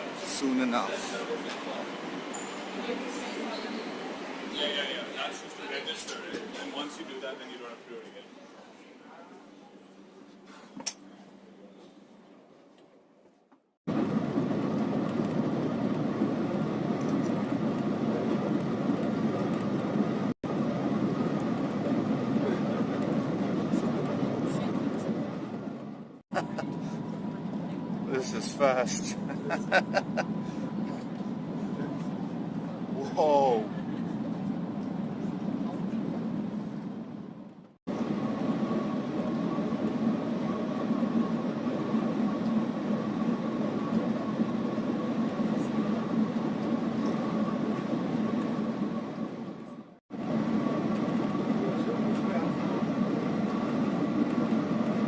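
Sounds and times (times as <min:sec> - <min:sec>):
train cabin rushing hum: 0:00.0 - 0:08.7, 0:13.9 - 0:55.0
thin steady whine: 0:13.9 - 0:55.0.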